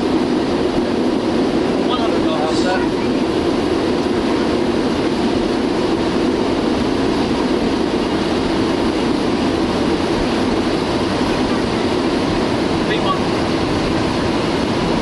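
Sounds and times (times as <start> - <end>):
cockpit engine and airflow rumble: 0.0 - 15.0.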